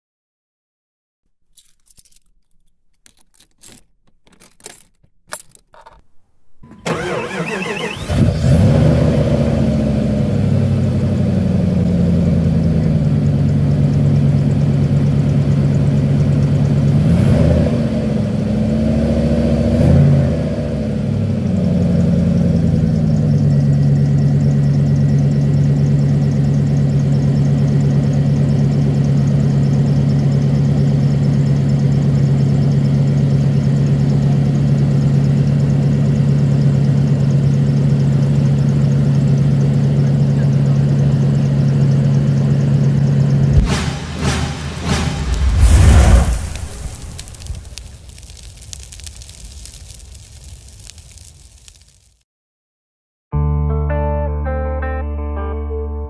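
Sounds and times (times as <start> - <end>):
engine cranking and starting: 6.6 - 10.6
engine revving and idling: 6.7 - 47.6.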